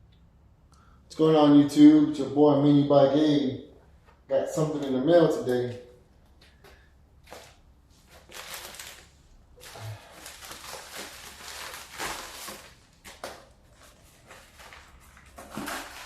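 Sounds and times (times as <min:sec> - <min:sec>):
envelope rustling and crinkling: 0:07.2 - 0:16.0.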